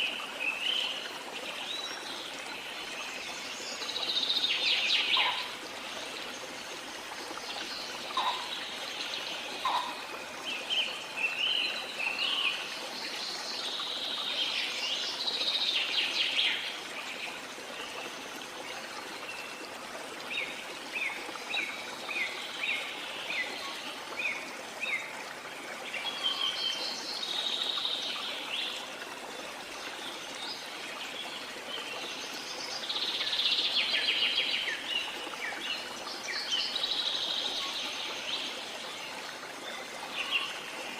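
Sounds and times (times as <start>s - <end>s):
falling water: 0.0s - 40.9s
birds calling and chirping: 4.2s - 5.6s, 7.6s - 10.1s.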